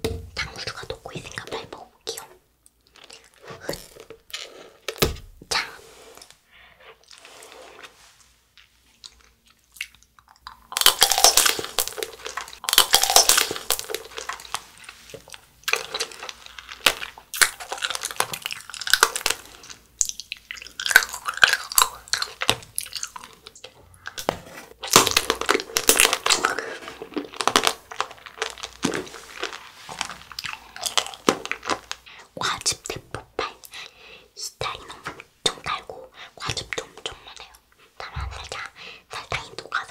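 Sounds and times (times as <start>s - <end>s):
crunching hard candy shell: 9.1s - 23.5s, 24.1s - 32.1s.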